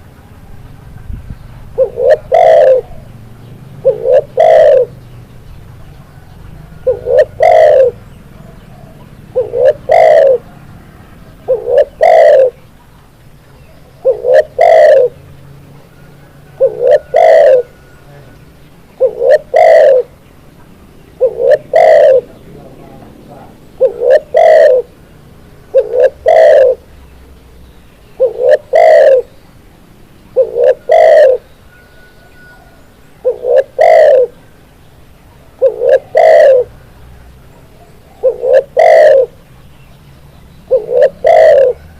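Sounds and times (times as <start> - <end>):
dove cooing: 1.6 - 5.1, 5.7 - 12.8, 13.5 - 20.2, 21.0 - 26.9, 28.2 - 29.4, 30.3 - 34.6, 35.3 - 39.5, 40.7 - 41.9.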